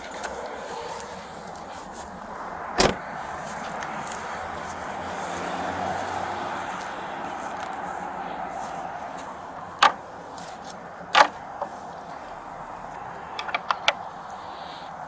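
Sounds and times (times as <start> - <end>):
steady outdoor hiss: 0.0 - 15.0
sharp clicks and knocks: 2.8 - 3.0, 9.8 - 10.0, 11.2 - 11.4.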